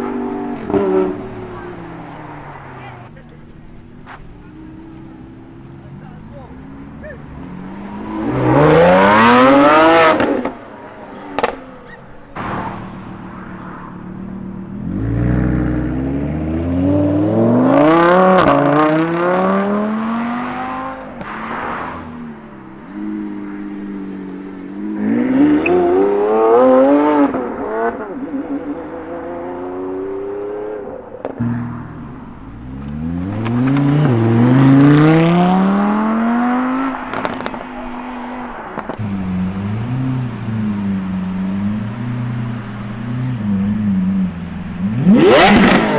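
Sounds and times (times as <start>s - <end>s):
supercar engines revving: 0.0s - 45.9s.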